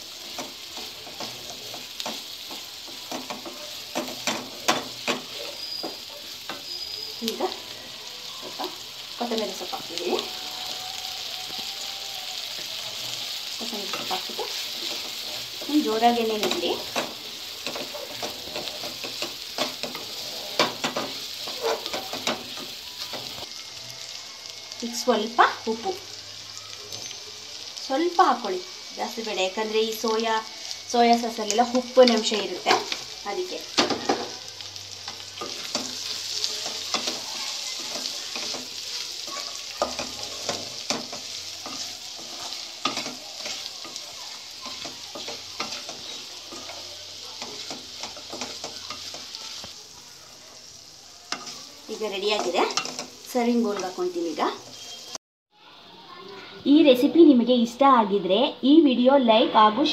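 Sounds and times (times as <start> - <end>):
meat sizzling in a pan: 0.0 - 58.8
spatula scraping and knocking pan: 0.1 - 6.8, 13.8 - 23.5, 35.1 - 49.8.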